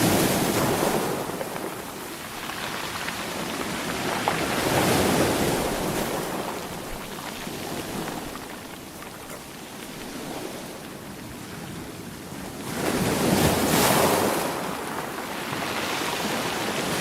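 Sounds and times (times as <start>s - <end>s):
ocean waves washing on shore: 0.0s - 17.0s.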